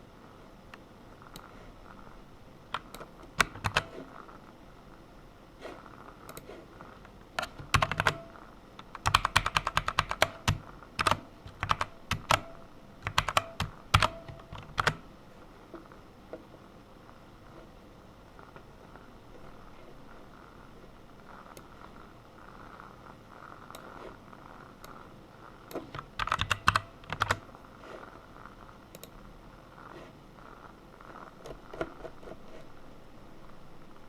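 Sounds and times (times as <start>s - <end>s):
typing on a computer keyboard: 2.7s - 4.0s, 7.4s - 15.0s, 25.7s - 27.5s.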